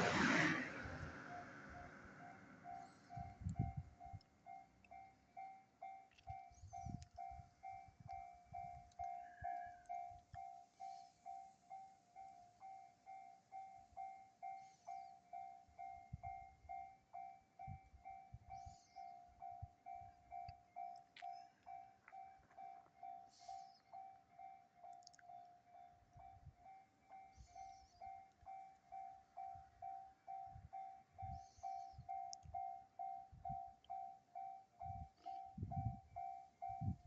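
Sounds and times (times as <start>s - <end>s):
low thuds of passing train: 0.0s - 4.2s
level-crossing warning bell: 0.1s - 37.0s.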